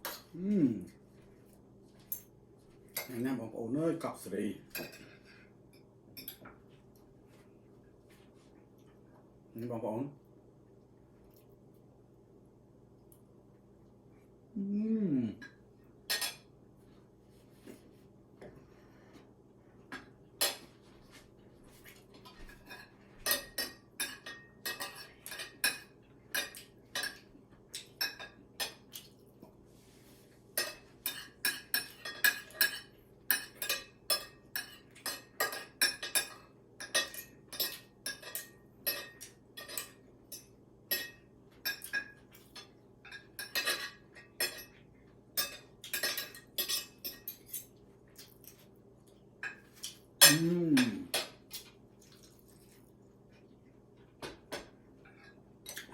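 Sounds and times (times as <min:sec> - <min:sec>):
faint steady hum: 0:00.0 - 0:55.9
utensils clinking against dishes: 0:22.3 - 0:28.8, 0:30.6 - 0:44.8, 0:45.4 - 0:47.8, 0:49.4 - 0:51.6.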